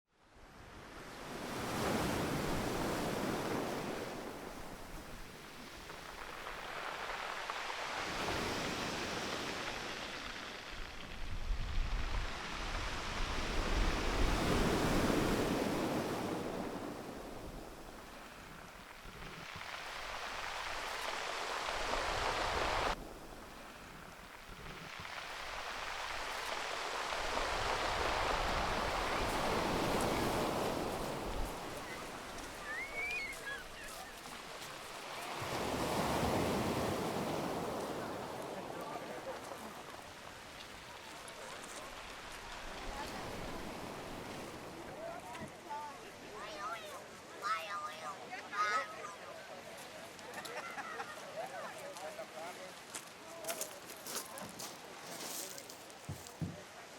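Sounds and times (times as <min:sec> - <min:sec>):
waves washing on shore: 0:00.4 - 0:56.9
wind rumbling on microphone: 0:08.0 - 0:26.4, 0:27.0 - 0:34.0
faint bird chirps: 0:31.8 - 0:34.3.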